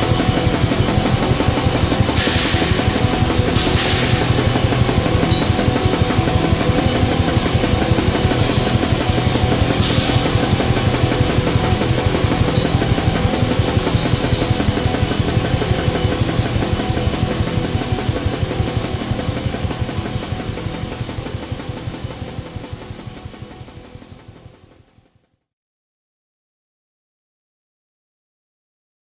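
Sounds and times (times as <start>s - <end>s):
distorted black metal music: 0.0s - 21.5s.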